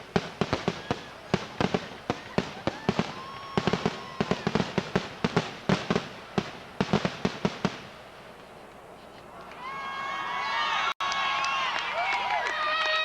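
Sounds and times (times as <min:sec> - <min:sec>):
fireworks cracking and banging: 0:00.0 - 0:08.8.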